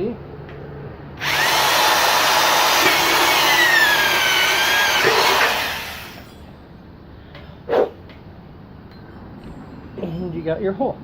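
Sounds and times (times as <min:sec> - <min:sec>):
electric drill whining: 0:01.2 - 0:06.2.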